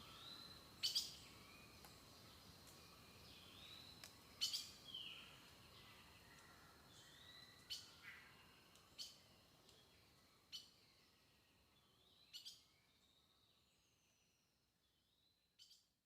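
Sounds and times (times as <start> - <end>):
bird chirps: 0.0 - 10.8, 11.8 - 13.3
thin whistled bird notes: 0.0 - 11.2.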